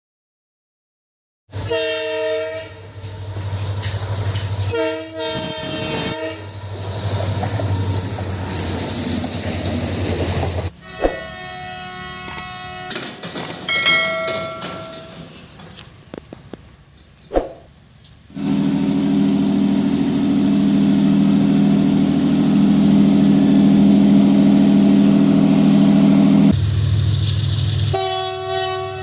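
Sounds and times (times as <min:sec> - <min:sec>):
locomotive horn: 0:01.5 - 0:03.3, 0:04.7 - 0:06.6, 0:07.7 - 0:09.2, 0:10.7 - 0:13.3, 0:18.4 - 0:26.5, 0:27.9 - 0:29.0
wheels rushing on rail: 0:01.5 - 0:29.0
low engine drone: 0:18.3 - 0:28.0.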